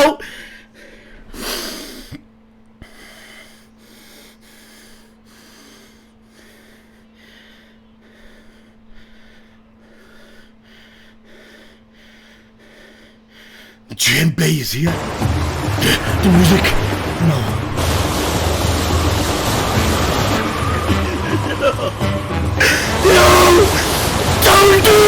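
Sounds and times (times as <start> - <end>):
low electrical hum: 0.0 - 22.0
person breathing quickly: 0.2 - 2.2, 2.8 - 13.9.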